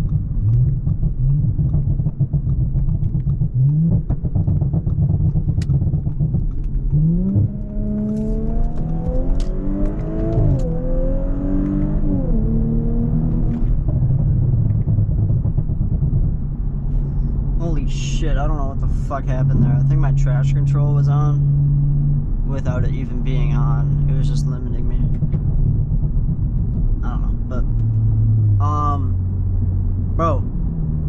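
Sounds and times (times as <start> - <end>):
car engine accelerating: 0.0 - 31.0.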